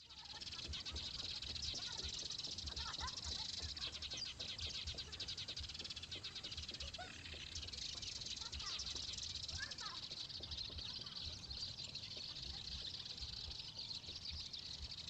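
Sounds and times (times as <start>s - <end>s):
sparrows chirping: 0.0s - 15.0s.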